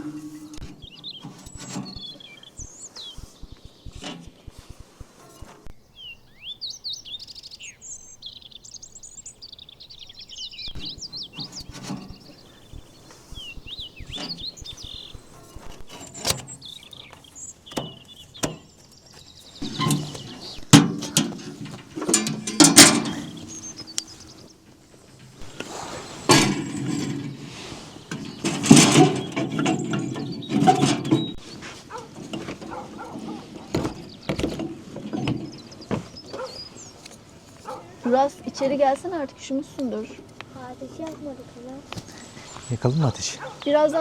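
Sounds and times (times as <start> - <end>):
songbirds chirping: 0.0 - 44.0
sharp knocks and clatter: 3.0 - 5.8, 19.6 - 24.0, 28.1 - 36.5.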